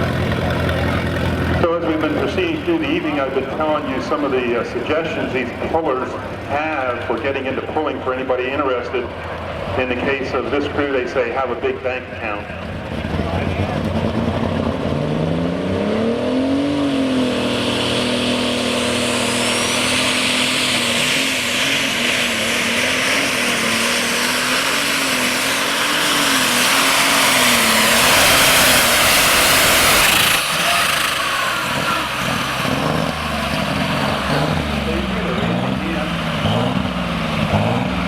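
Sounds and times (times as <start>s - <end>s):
tractor diesel engine revving: 0.0s - 38.0s
engine hiss: 17.2s - 38.0s.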